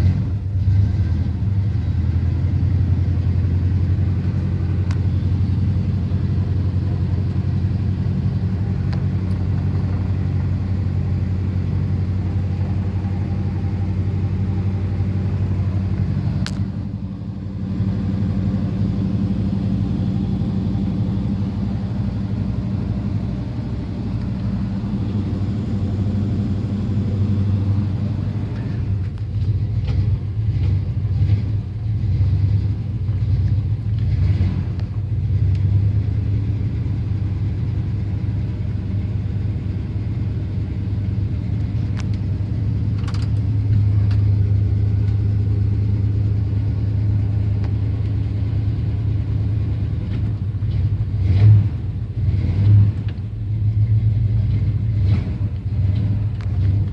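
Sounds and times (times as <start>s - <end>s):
car engine idling: 0.0s - 56.9s
faint clicks: 41.6s - 42.2s.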